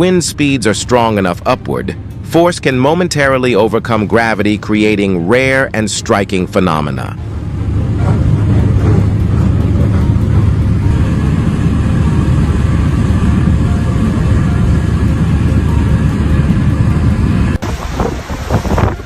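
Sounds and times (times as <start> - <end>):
strong wind on microphone: 7.2 - 19.0.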